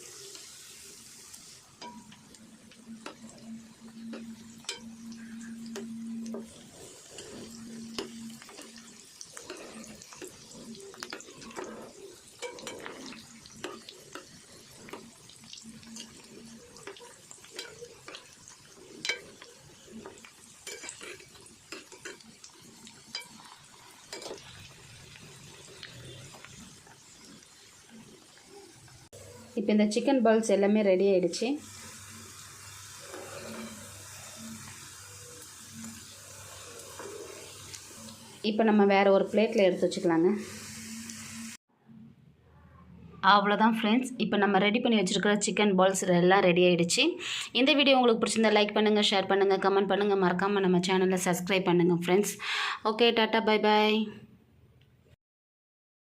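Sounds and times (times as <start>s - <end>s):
food deep-frying in oil: 0.0s - 41.6s
low steady hum: 1.8s - 9.6s
utensil clinking and scraping pan: 4.0s - 15.1s, 16.9s - 22.2s, 23.0s - 24.6s.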